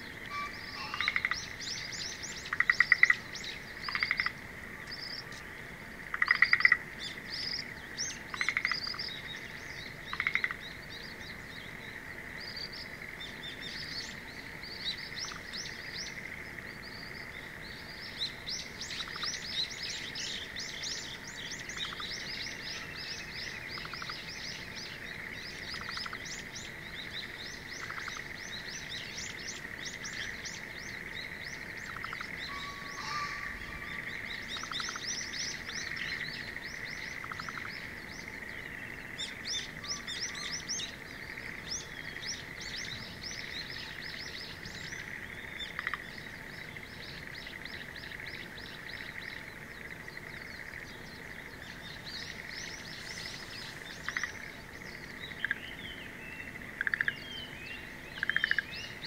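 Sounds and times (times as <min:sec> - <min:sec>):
steady high background tone: 0:00.0 - 0:03.8, 0:31.8 - 0:35.9
birds chirping: 0:00.0 - 0:05.6, 0:06.2 - 0:59.0.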